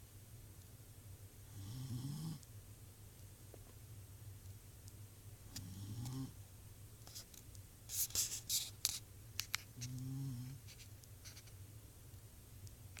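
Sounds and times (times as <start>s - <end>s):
dog snoring: 1.5s - 2.4s, 5.6s - 6.4s, 9.9s - 10.6s
scratchy rustling: 7.9s - 9.0s, 10.6s - 11.6s.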